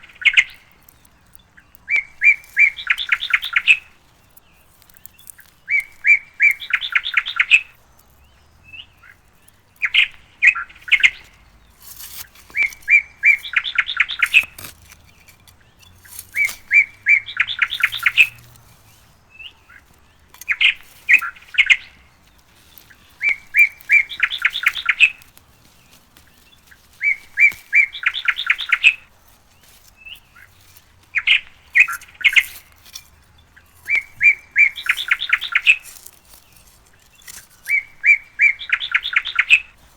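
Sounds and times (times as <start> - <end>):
songbird trilling phrase: 0.0 - 11.6, 12.5 - 18.5, 19.3 - 25.3, 37.2 - 39.7.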